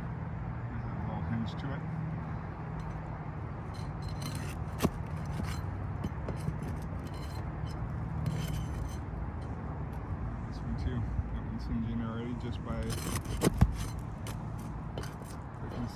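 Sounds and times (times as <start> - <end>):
metal bar scraping shingles: 3.6 - 9.1, 12.7 - 15.9.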